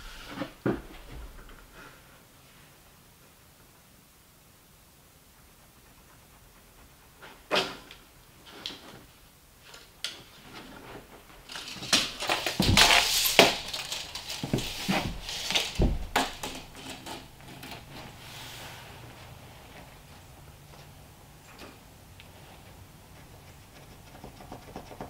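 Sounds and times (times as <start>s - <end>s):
rustling: 5.2s - 25.0s
objects knocking and clattering: 10.4s - 18.2s
heavy thumps: 11.8s - 21.0s.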